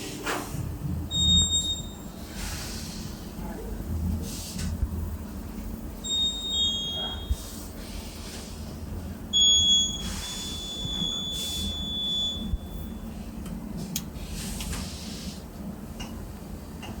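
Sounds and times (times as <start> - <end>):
high electronic beep: 6.1 - 7.4, 9.4 - 13.1
factory machinery humming: 8.8 - 14.7.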